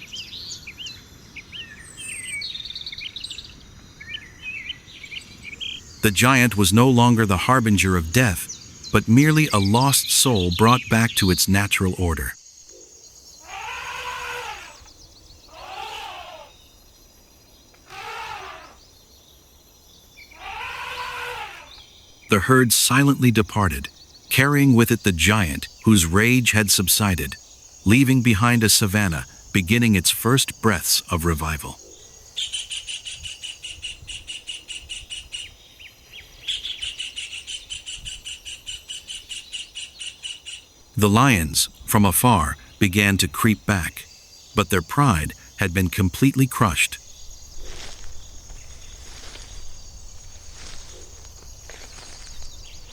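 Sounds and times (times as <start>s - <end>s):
faint high chirring: 12.6s - 19.2s
animal calling: 12.7s - 16.6s, 17.7s - 18.8s, 20.2s - 31.8s
high rhythmic chirping call: 20.2s - 52.9s.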